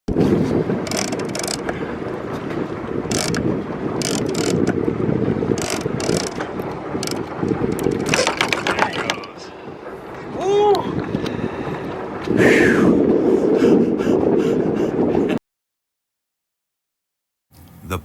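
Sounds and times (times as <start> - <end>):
wind noise on microphone: 0.1 - 15.4
fishing reel clicking: 0.8 - 1.6, 3.1 - 3.4, 4.0 - 4.7, 5.6 - 6.4, 7.0 - 7.9.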